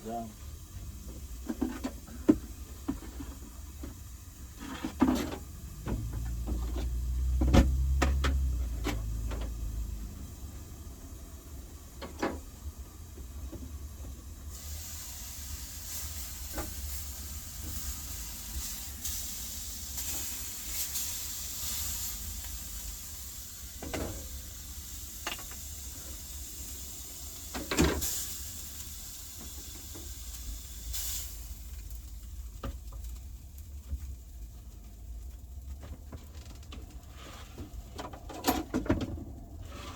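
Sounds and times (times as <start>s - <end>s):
steaks sizzling in a frying pan: 14.4s - 33.4s.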